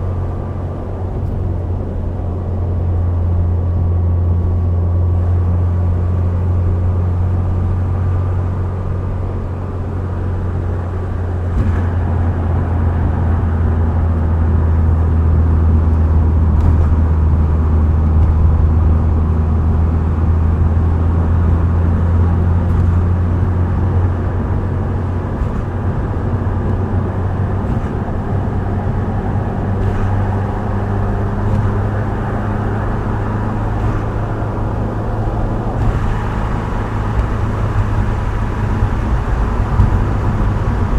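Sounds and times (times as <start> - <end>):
car engine droning: 0.0 - 40.9
road and tyre noise: 0.0 - 40.9.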